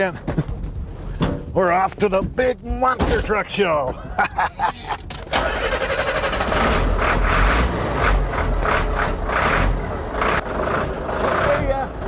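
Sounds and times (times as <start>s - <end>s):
truck engine running: 5.2s - 12.0s.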